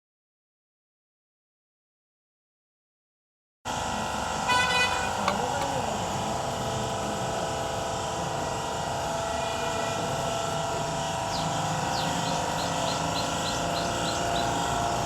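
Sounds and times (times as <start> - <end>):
motor drone with held tones: 3.7 - 15.0.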